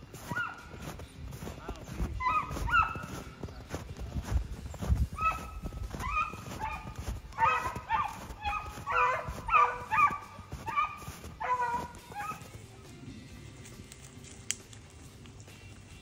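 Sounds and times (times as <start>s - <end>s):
dog baying with high yelps: 0.2s - 0.8s, 2.2s - 3.2s, 5.1s - 12.6s.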